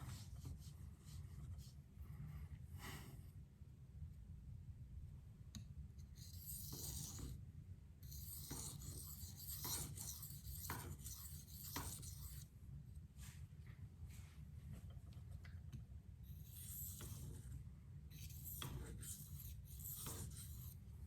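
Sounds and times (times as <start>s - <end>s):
knife scraping on sharpening stone: 6.2s - 7.3s, 8.0s - 12.4s, 18.1s - 20.8s.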